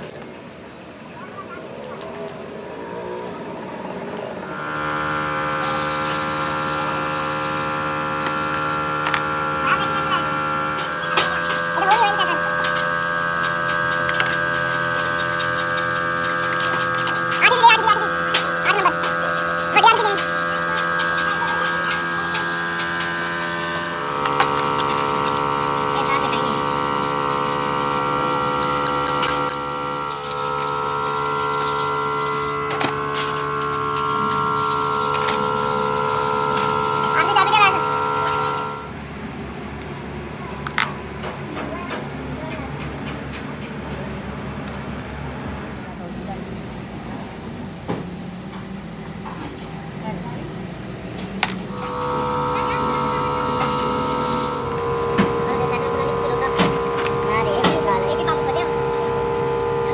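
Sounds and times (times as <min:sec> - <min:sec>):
electric motor humming: 0:03.0 - 0:39.0, 0:51.4 - 0:59.9.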